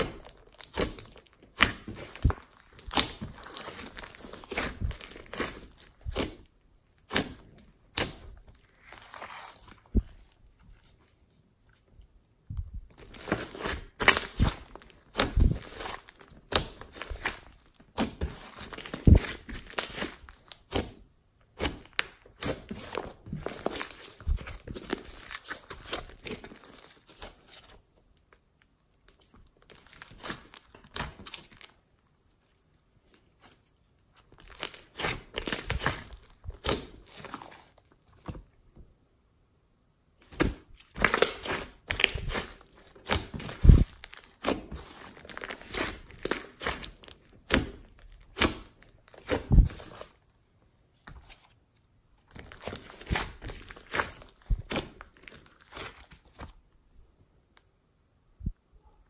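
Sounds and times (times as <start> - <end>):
slime crackling and crunching: 0.0 - 11.0, 12.9 - 21.0, 21.6 - 27.8, 34.2 - 37.9, 40.2 - 50.2, 52.2 - 56.6.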